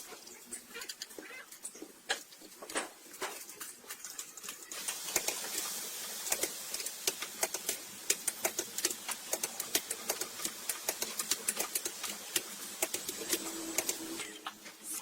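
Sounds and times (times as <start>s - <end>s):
steady hiss: 4.4s - 15.0s
hand tools clicking and tapping: 6.3s - 14.2s.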